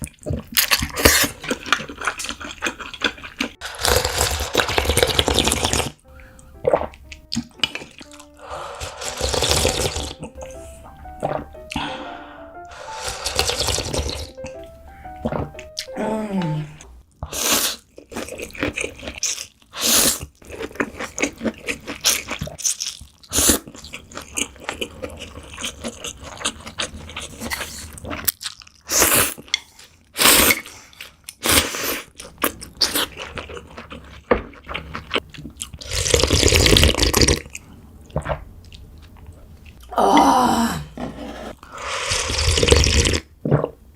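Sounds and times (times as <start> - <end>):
chewing: 0.0 - 6.0, 17.2 - 29.9, 32.1 - 39.9
noodles slurped: 0.0 - 6.0, 6.7 - 10.4, 12.7 - 14.4, 34.7 - 37.6, 41.0 - 43.8.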